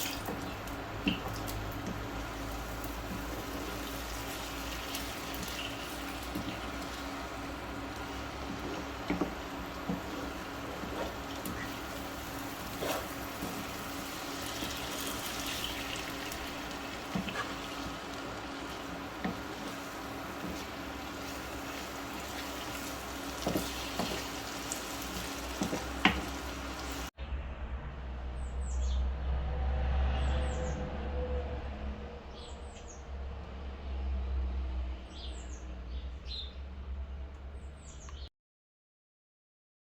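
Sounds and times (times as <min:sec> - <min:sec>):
food sizzling in a pan: 0:00.0 - 0:27.1
low hum: 0:27.2 - 0:34.6.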